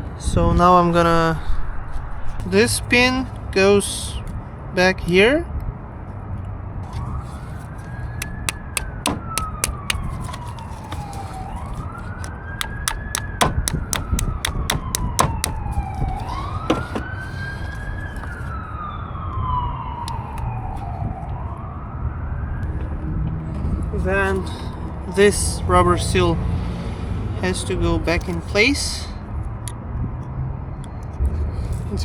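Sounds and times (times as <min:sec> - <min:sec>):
clicks on plastic connector: 0:08.2 - 0:11.0, 0:12.6 - 0:15.7
emergency siren wailing: 0:15.5 - 0:23.5.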